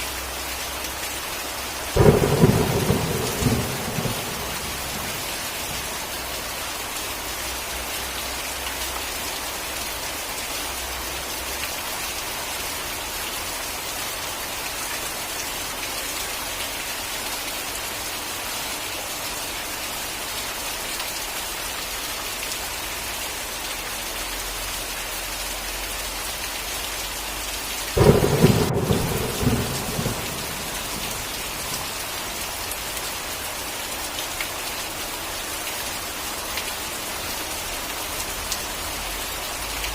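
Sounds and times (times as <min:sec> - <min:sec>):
heavy rain falling: 0:00.0 - 0:39.9
thunderclap rumbling: 0:02.0 - 0:06.0, 0:28.0 - 0:32.4.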